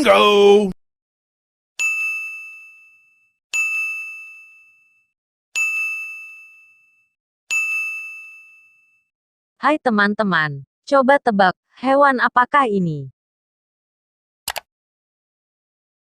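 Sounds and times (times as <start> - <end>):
bell-like ding: 1.8 - 9.1.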